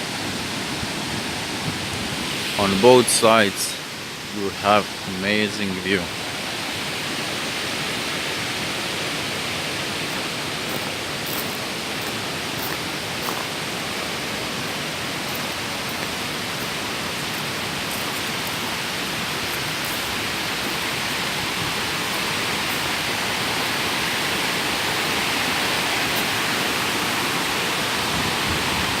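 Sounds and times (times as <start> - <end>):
waterfall roaring: 0.0 - 29.0.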